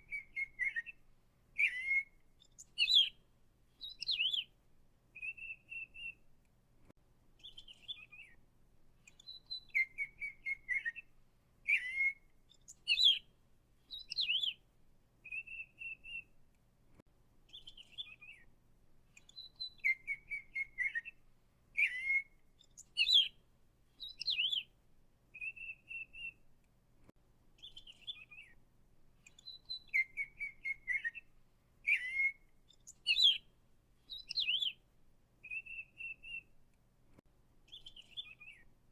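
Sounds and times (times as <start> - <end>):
songbird whistling and trilling: 0.0 - 1.0, 1.6 - 3.2, 3.8 - 4.5, 5.2 - 6.2, 7.4 - 8.4, 9.0 - 13.3, 13.9 - 14.6, 15.2 - 16.3, 17.5 - 18.5, 19.2 - 21.2, 21.8 - 23.4, 24.0 - 24.7, 25.3 - 26.4, 27.6 - 28.6, 29.3 - 33.5, 34.1 - 34.8, 35.4 - 36.5, 37.7 - 38.7.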